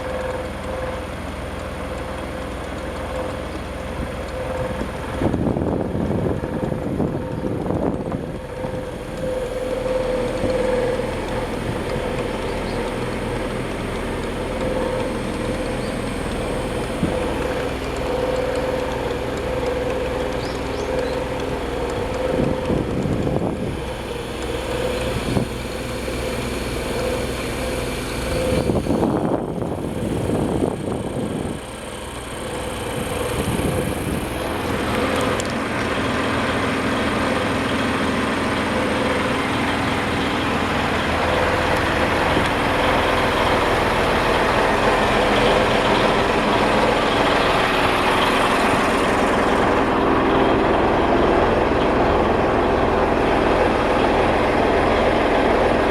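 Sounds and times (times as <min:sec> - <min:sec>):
marine diesel engine running: 0:00.0 - 0:55.9.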